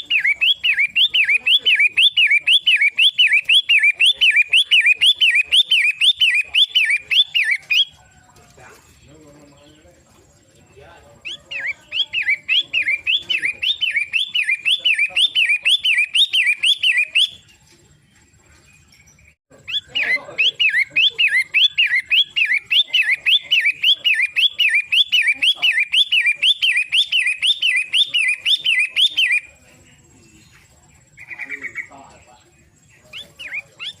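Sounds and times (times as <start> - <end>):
shrike calling: 0.0 - 34.0.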